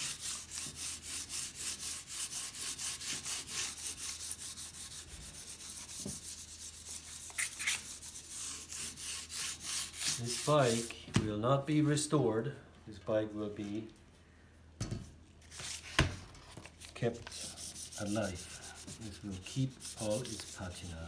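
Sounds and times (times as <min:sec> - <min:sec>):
sandpaper rubbing on metal tube: 0:00.0 - 0:11.0, 0:16.9 - 0:21.0.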